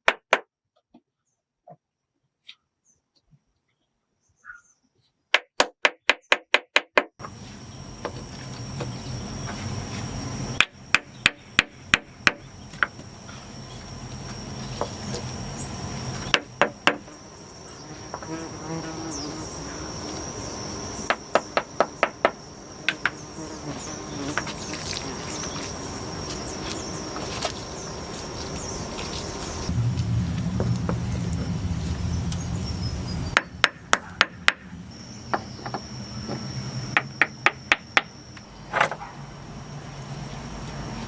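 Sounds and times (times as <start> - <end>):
high-pitched insect drone: 7.2 - 41.0
hammering strikes: 10.6 - 13.0, 16.2 - 17.1, 21.0 - 23.2, 33.3 - 34.7, 37.0 - 38.2.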